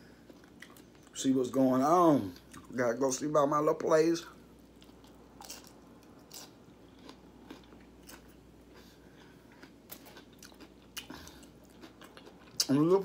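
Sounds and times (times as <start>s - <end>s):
person chewing crunchy food: 0.2s - 1.2s, 4.7s - 12.9s.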